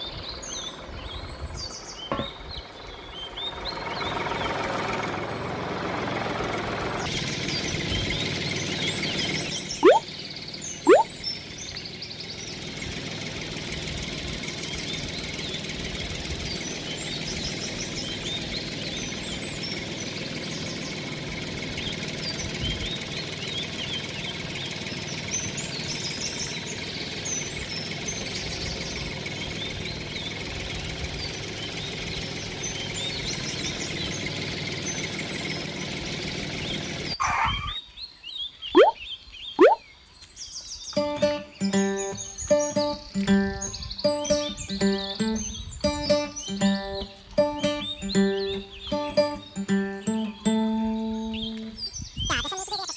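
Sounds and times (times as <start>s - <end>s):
birds chirping: 0.0s - 4.8s, 6.6s - 52.9s
tractor engine running: 0.0s - 37.4s, 40.8s - 52.9s
sharp knocks: 2.1s - 2.4s
rising whistles: 9.8s - 10.1s, 10.9s - 11.2s.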